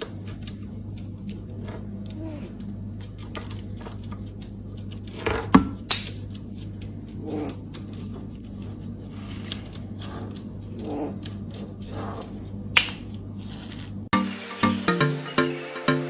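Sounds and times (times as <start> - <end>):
electronic music: 14.1 - 16.0.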